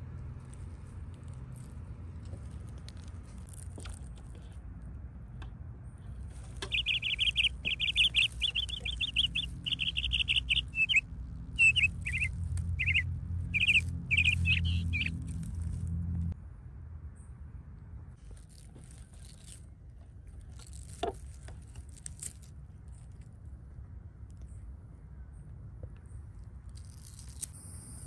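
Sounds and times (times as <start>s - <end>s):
low steady rumble: 0.0s - 26.9s
songbird trilling and chirping: 6.6s - 11.0s, 11.6s - 15.2s.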